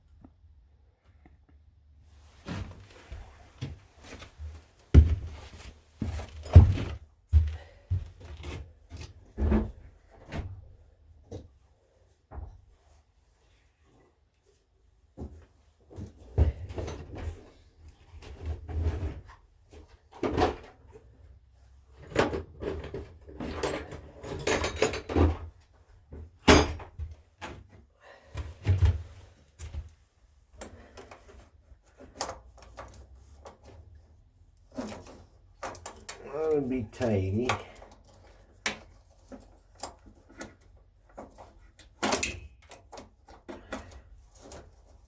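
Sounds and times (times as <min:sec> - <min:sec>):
tools and metal parts clanking: 0:22.0 - 0:25.6, 0:30.6 - 0:45.0.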